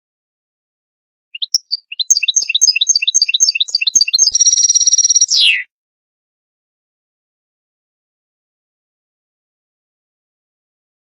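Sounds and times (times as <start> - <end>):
finch singing: 1.4 - 5.7.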